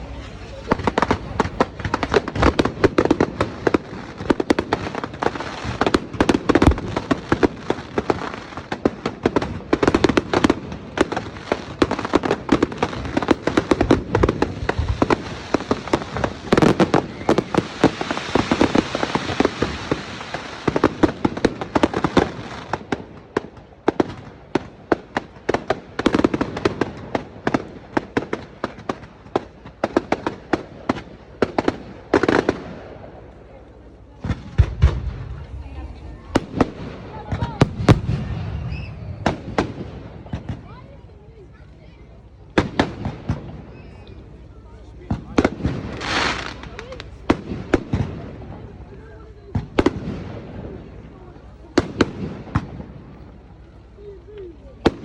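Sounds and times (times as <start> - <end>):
fireworks hissing: 0.0 - 23.1, 45.2 - 48.4
fireworks bangs and crackles: 0.0 - 55.0.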